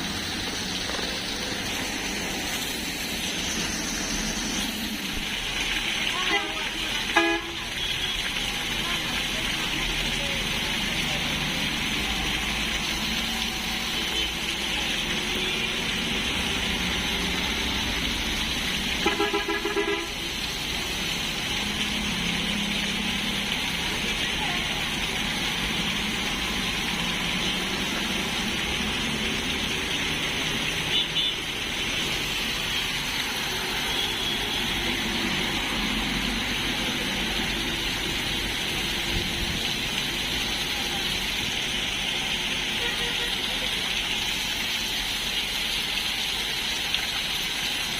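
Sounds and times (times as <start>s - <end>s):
heavy rain falling: 0.0s - 47.9s
vehicle horn: 7.2s - 8.1s, 19.0s - 20.2s, 30.9s - 31.4s, 42.8s - 43.3s.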